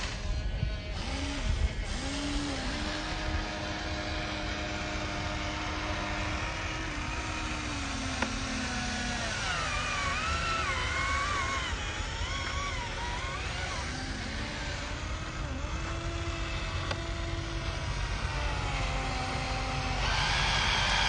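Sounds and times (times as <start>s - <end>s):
electric motors and gearboxes whining: 0.0s - 21.0s.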